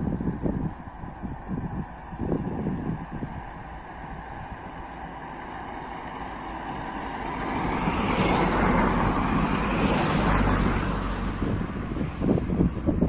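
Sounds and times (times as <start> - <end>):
train rushing past: 4.1 - 12.3.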